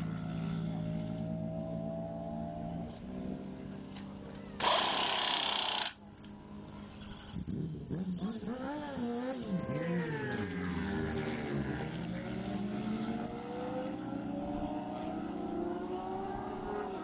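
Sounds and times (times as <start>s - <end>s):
motorcycle engine revving: 6.9s - 17.0s.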